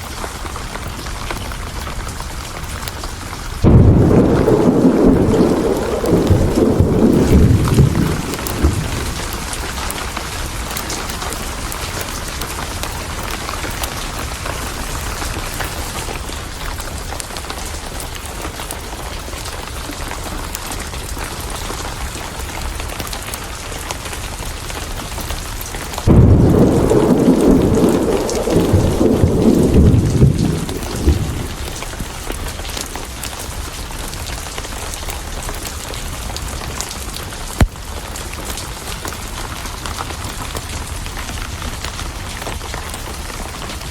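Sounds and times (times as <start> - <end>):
heavy rain: 0.0 - 43.9
thunder rumbling: 3.0 - 15.7, 26.0 - 34.2.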